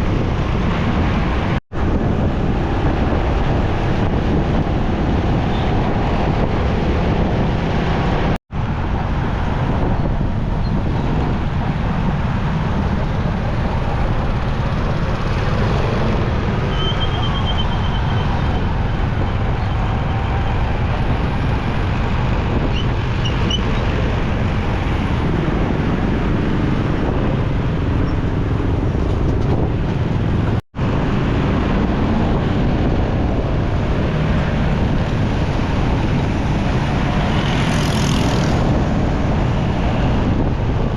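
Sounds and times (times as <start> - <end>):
road traffic noise: 0.0 - 40.9
wind on microphone: 0.0 - 40.9.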